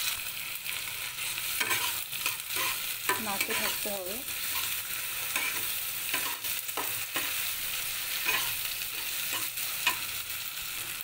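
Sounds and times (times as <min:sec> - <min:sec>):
onion and tomato sizzling in oil: 0:00.0 - 0:11.0
spatula scraping and knocking pan: 0:01.6 - 0:07.4, 0:08.2 - 0:10.1.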